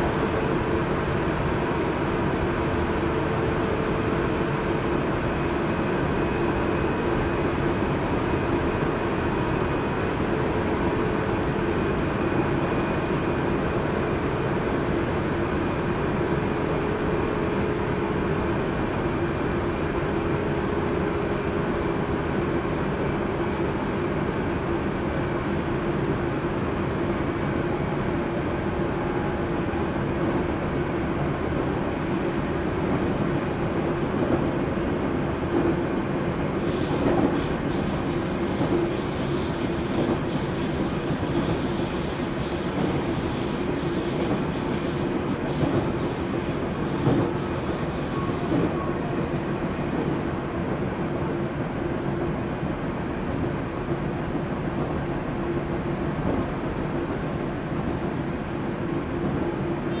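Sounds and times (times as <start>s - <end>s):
steady train hum: 0.0s - 60.0s
train wheels rumbling on rail: 0.0s - 60.0s.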